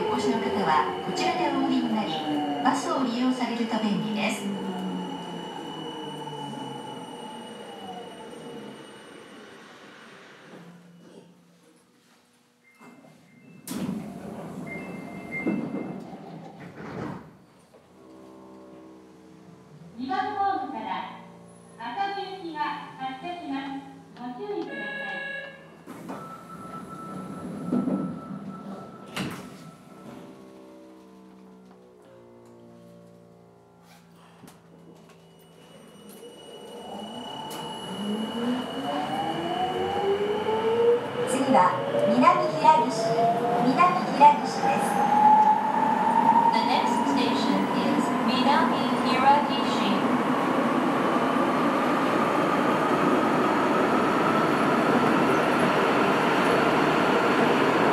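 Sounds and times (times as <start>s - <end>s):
train doors sliding: 12.9s - 17.7s
train motor whine rising: 26.1s - 43.7s.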